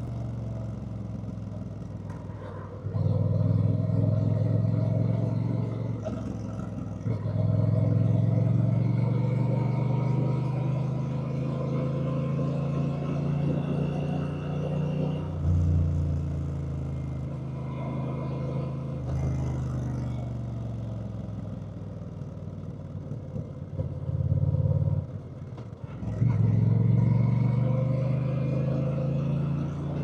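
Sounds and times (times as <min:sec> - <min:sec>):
motorcycle engine running: 0:00.0 - 0:27.2.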